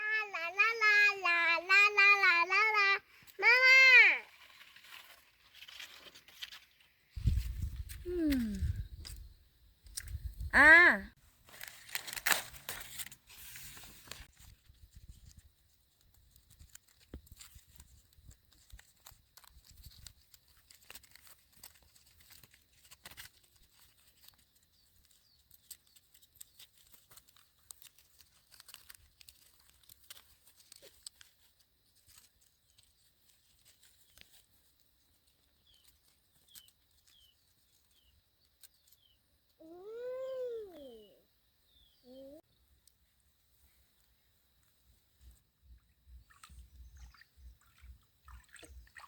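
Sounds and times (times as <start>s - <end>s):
leaves and sticks rustling: 0.5s - 41.0s
short bird chirps: 46.1s - 48.0s.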